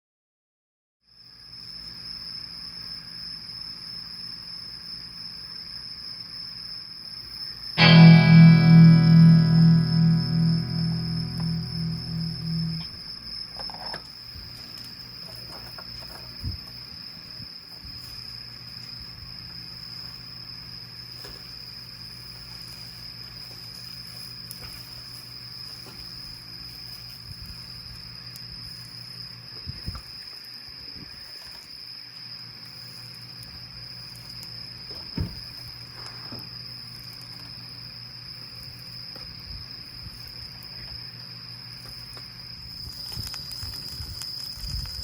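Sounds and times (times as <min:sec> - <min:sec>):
low steady hum: 0:07.8 - 0:13.0
insects chirring: 0:13.6 - 0:45.0.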